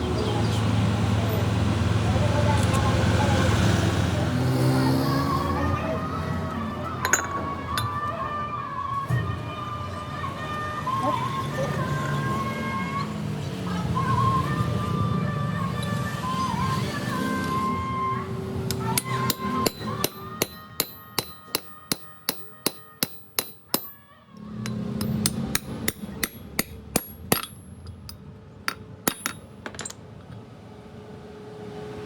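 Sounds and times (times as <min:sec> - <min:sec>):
hammer striking metal: 0:07.0 - 0:08.0, 0:18.7 - 0:30.0.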